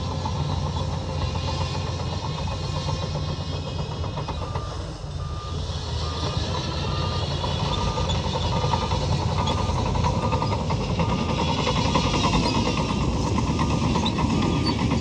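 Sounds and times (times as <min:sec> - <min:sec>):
diesel engine running: 0:00.0 - 0:15.0
reversing alarm beeping: 0:04.4 - 0:15.0.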